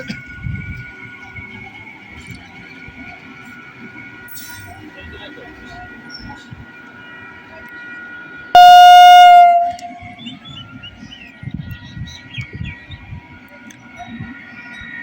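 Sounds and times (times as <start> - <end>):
train rumbling on track: 0.0 - 15.0
electric train horn blast: 8.5 - 10.1.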